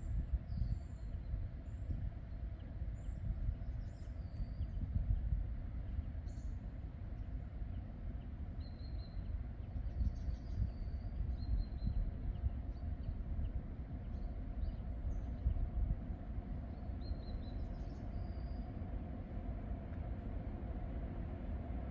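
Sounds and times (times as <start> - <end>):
steady low rumble: 9.2 - 21.9.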